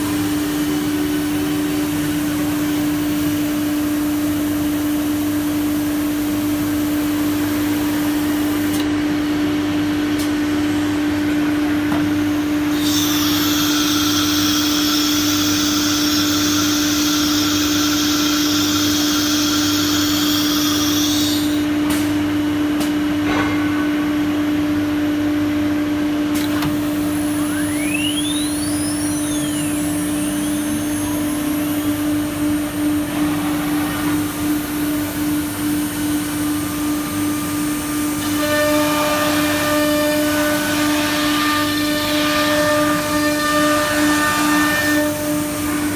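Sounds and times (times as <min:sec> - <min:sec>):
cnc router spindle hum: 0:11.2 - 0:21.8, 0:26.4 - 0:45.9
brief rising and falling whines: 0:27.0 - 0:35.2.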